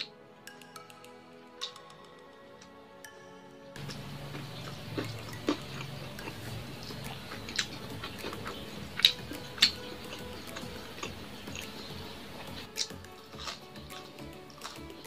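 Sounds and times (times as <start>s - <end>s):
chewing with wet mouth clicks: 1.6s - 1.9s, 3.8s - 15.0s.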